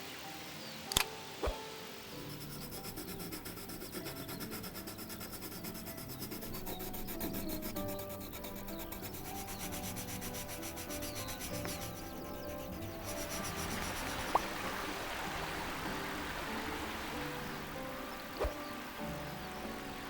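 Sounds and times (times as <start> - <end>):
pencil scratching on paper: 2.2 - 14.6.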